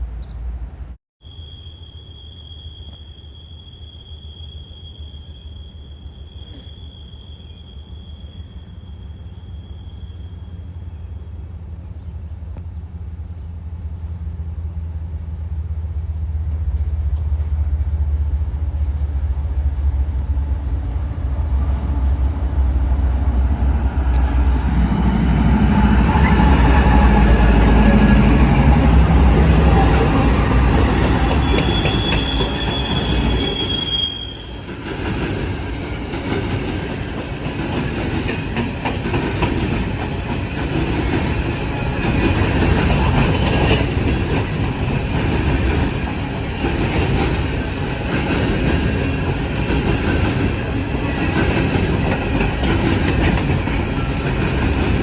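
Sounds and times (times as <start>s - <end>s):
diesel locomotives rumbling: 5.3s - 55.0s.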